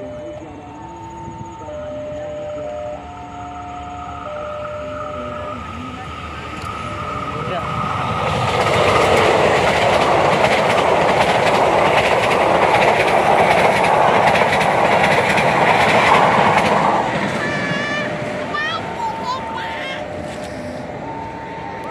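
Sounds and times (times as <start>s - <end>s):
train rushing rumble: 0.0s - 21.9s
train wheels clattering over rail joints: 7.5s - 17.4s.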